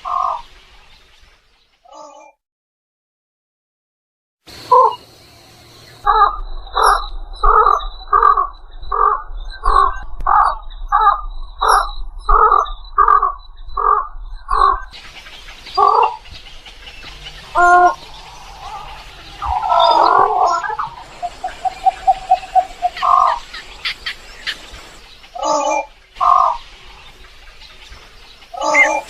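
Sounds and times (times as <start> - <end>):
egret calling: 6.0 - 26.7, 28.5 - 29.0.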